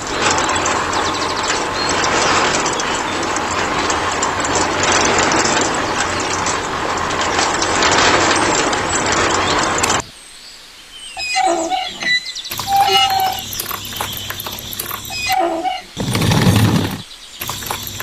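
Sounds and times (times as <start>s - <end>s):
mechanical rattling clatter: 12.5s - 15.4s, 16.0s - 18.0s.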